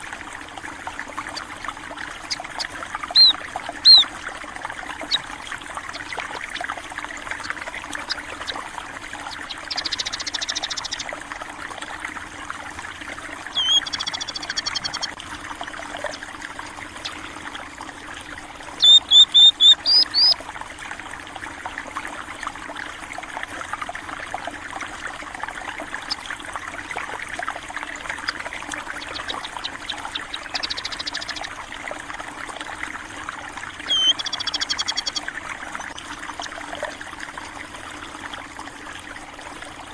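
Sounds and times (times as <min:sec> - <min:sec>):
stream water trickling: 0:00.0 - 0:39.9
small birds chirping: 0:02.1 - 0:04.1, 0:05.0 - 0:05.3, 0:05.9 - 0:06.7, 0:07.4 - 0:11.1, 0:13.5 - 0:15.2, 0:18.8 - 0:20.4, 0:28.1 - 0:31.5, 0:33.8 - 0:36.5.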